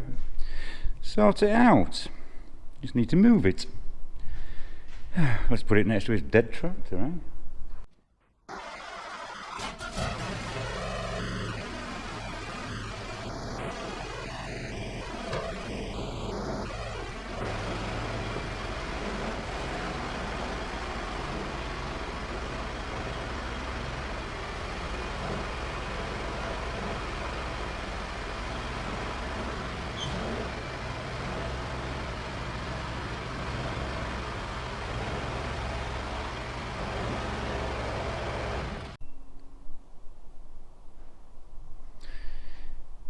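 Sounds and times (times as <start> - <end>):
stump grinder engine running: 8.5 - 39.0.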